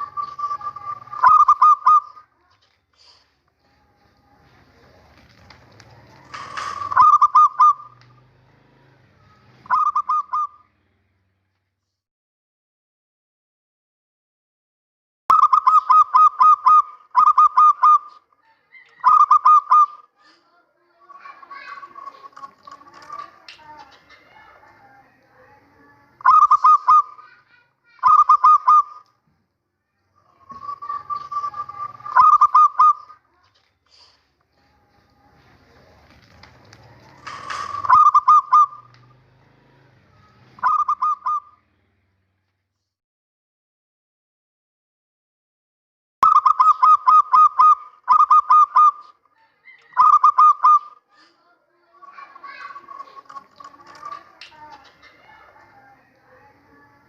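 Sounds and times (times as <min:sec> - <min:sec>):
dove cooing: 0:00.0 - 0:02.5, 0:03.8 - 0:10.6, 0:15.3 - 0:20.4, 0:21.0 - 0:29.1, 0:30.2 - 0:33.4, 0:35.2 - 0:41.6, 0:46.3 - 0:51.3, 0:52.0 - 0:57.0.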